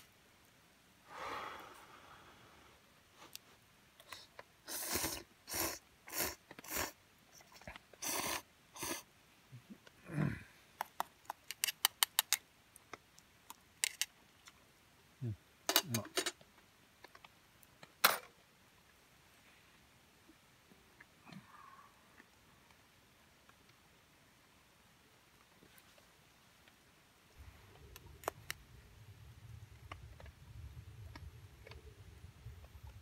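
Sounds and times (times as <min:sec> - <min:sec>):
small objects clicking and scraping: 0:10.8 - 0:14.6.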